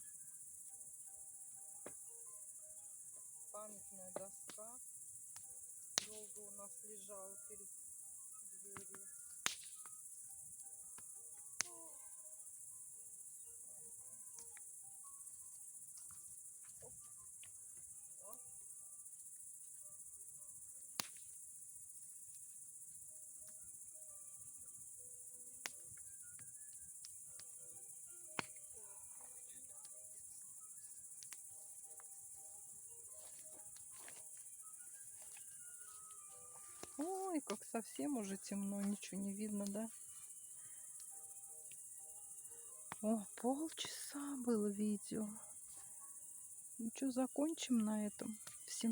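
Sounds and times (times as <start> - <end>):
crickets chirring: 0.0 - 48.9
bonfire pops and cracks: 4.1 - 6.6, 8.7 - 10.1, 10.9 - 12.1, 20.9 - 21.5, 25.6 - 27.6, 28.3 - 32.1, 33.2 - 34.5, 35.2 - 39.8.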